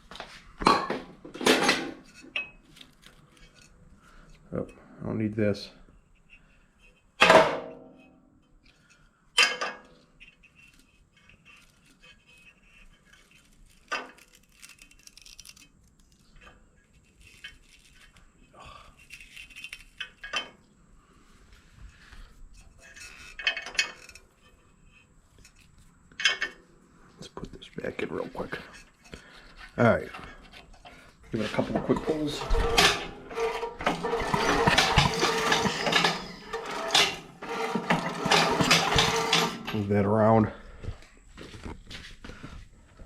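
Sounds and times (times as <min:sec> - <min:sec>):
metal tools clinking and knocking: 0:00.6 - 0:03.8, 0:06.9 - 0:13.3, 0:19.0 - 0:20.6, 0:22.6 - 0:26.6, 0:27.9 - 0:40.1.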